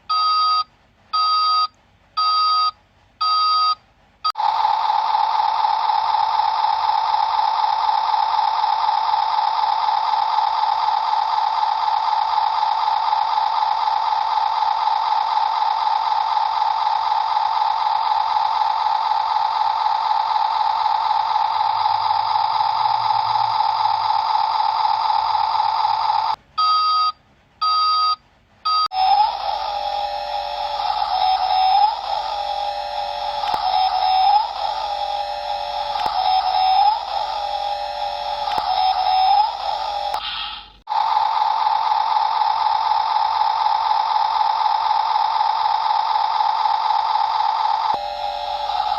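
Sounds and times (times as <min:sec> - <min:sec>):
wavering electronic tune: 0:28.9 - 0:40.6, 0:46.6 - 0:48.9
warbling electronic tone: 0:28.9 - 0:40.8, 0:45.5 - 0:48.9.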